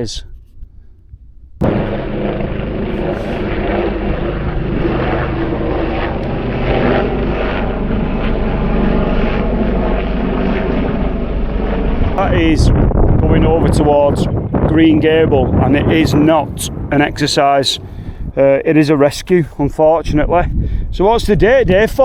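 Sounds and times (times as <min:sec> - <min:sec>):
helicopter rotor and engine drone: 0:01.6 - 0:18.4.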